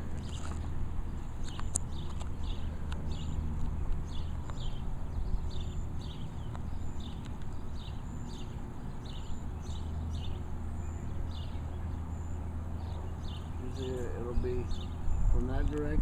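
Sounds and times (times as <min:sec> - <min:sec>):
bird chirping: 0:00.0 - 0:16.0
steady low rumble: 0:00.0 - 0:16.0.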